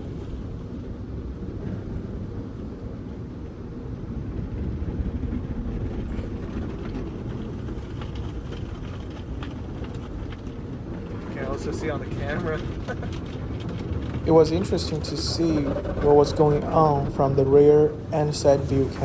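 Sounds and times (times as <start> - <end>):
car wash machinery rumble: 0.0 - 19.0
light patters and ticks: 5.9 - 19.0.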